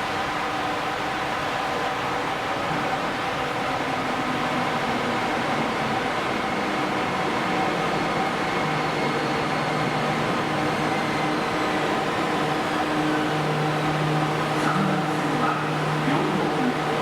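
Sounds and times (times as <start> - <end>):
subway train running rush: 0.0 - 17.0.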